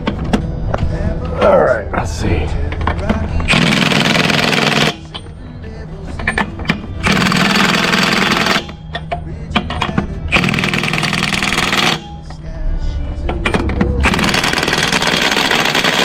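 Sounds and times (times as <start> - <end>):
cordless power tool bursts: 3.5 - 5.1, 14.0 - 16.0.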